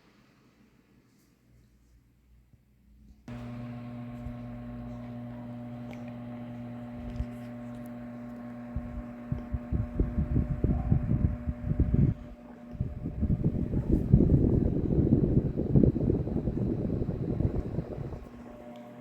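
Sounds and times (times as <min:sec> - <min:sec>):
fan motor hum: 0:03.3 - 0:19.0
wind buffeting microphone: 0:08.8 - 0:18.3.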